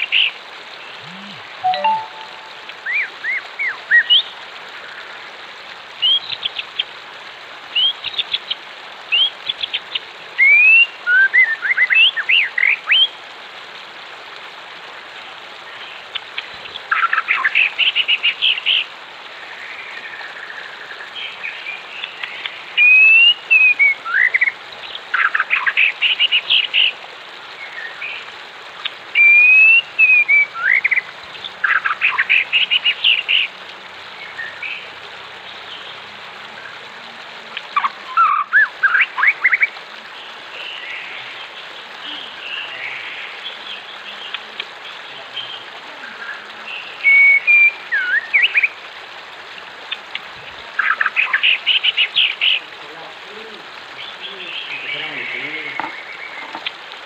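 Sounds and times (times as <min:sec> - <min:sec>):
running water: 0:00.0 - 0:57.0
songbirds chirping and calling: 0:27.6 - 0:36.0, 0:37.6 - 0:48.8, 0:49.8 - 0:56.9.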